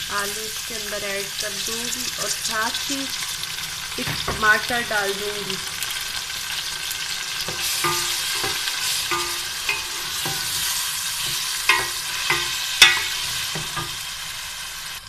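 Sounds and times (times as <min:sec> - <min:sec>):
vegetables sizzling in hot oil: 0:00.0 - 0:15.0
wooden spoon knocking on pot: 0:07.5 - 0:14.0.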